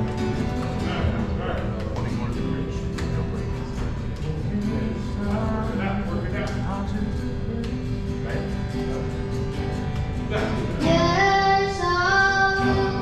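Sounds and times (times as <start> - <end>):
strummed guitar: 0.0 - 13.0
person singing: 4.2 - 8.4, 10.3 - 13.0.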